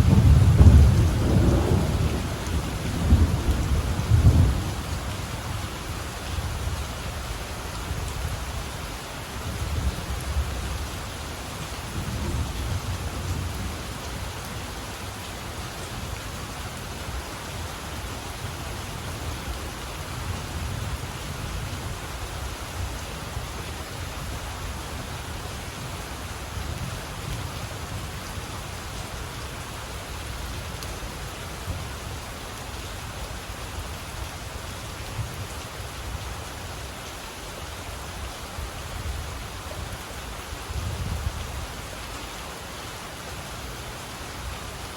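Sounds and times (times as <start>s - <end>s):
low thunder rumbles: 0.0s - 5.6s
steady rain falling: 0.0s - 44.9s.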